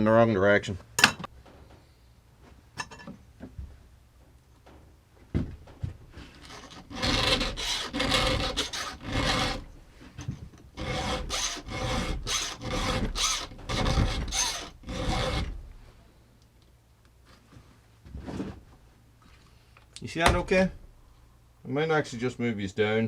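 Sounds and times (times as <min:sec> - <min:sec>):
file rasping on chainsaw chain: 0:06.4 - 0:09.7, 0:10.8 - 0:15.6.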